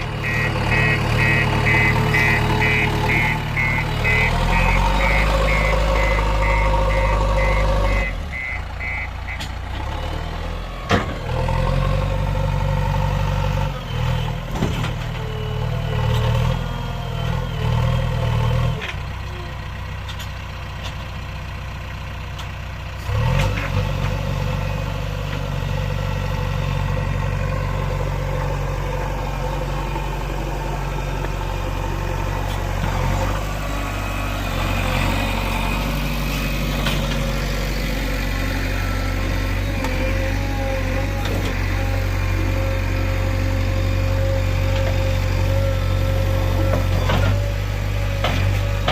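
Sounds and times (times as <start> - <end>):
backhoe diesel engine working: 0.0 - 48.9
repeated beeping: 0.2 - 9.4.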